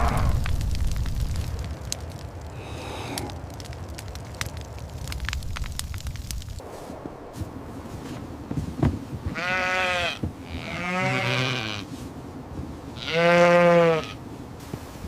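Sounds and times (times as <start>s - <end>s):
animal bleating: 9.3s - 11.8s, 13.0s - 14.2s.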